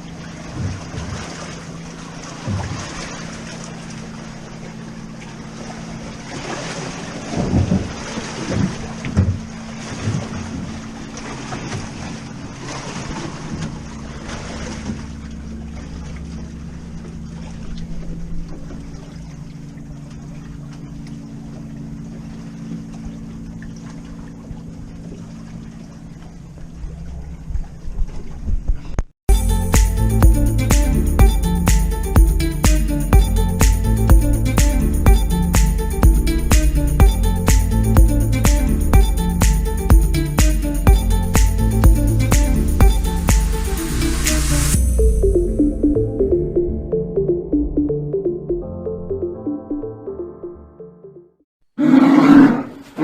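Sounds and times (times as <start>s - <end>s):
motorboat engine humming: 0.0s - 51.4s.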